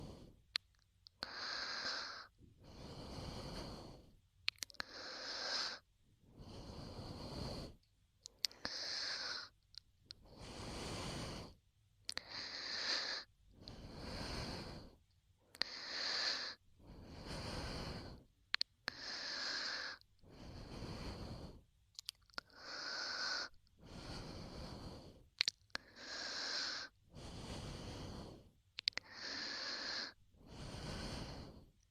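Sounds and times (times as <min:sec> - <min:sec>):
slow close breathing: 0:00.0 - 0:31.9
wet mouth clicks: 0:04.4 - 0:05.0, 0:08.2 - 0:08.8, 0:18.5 - 0:18.8, 0:21.9 - 0:22.5, 0:25.4 - 0:25.8, 0:28.8 - 0:29.3.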